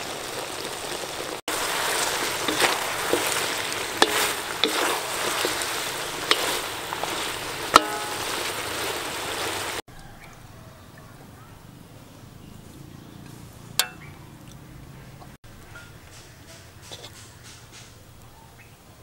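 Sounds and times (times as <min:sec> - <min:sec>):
food sizzling in a wok: 0:00.0 - 0:09.8
spatula knocking against pan: 0:07.7 - 0:08.3.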